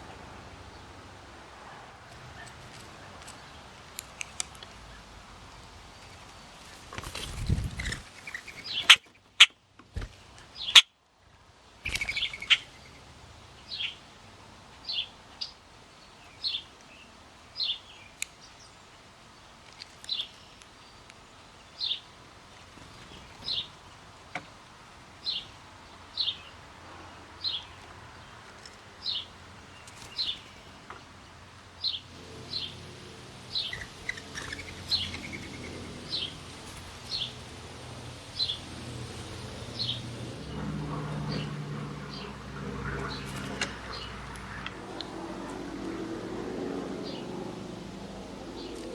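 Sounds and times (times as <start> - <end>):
bird chirping: 2.3 - 10.9, 11.8 - 14.2, 14.8 - 22.2, 31.7 - 46.0.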